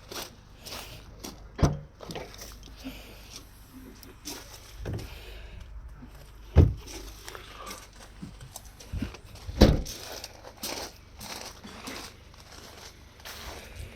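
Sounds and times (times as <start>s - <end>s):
dull heavy thumps: 4.8s - 5.3s, 5.9s - 7.2s, 8.2s - 10.0s.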